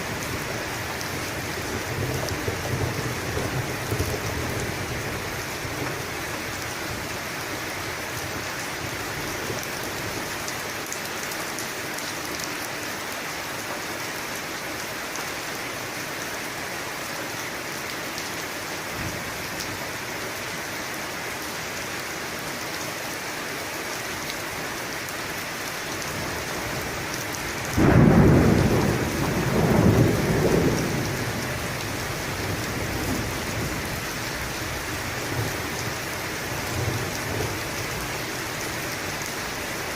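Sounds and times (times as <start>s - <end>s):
steady rain falling: 0.0s - 39.9s
thunder rumbling: 27.6s - 34.0s.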